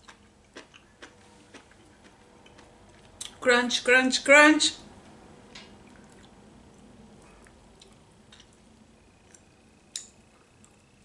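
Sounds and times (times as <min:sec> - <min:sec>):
chewing crunchy food: 0:00.0 - 0:03.4, 0:05.8 - 0:10.8.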